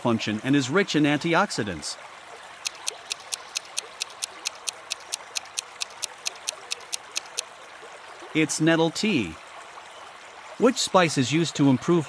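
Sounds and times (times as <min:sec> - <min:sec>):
countdown timer ticking: 0:02.7 - 0:07.4.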